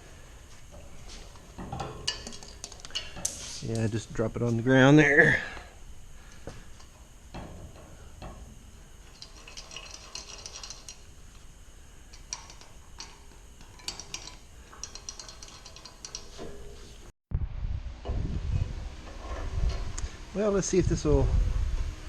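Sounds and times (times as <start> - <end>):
metal tools clicking and clinking: 1.6 - 3.9, 9.0 - 11.4, 12.1 - 16.8.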